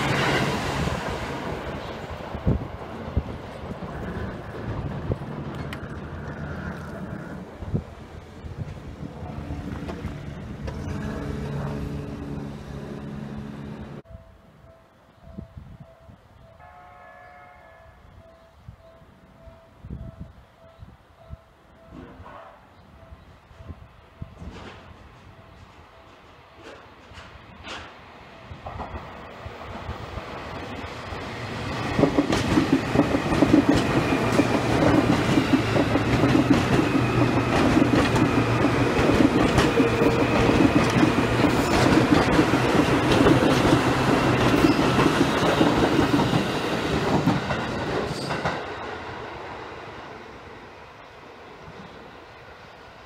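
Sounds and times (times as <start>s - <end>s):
electric train passing: 0.0s - 53.0s
wheels clicking over rail joints: 30.5s - 48.8s.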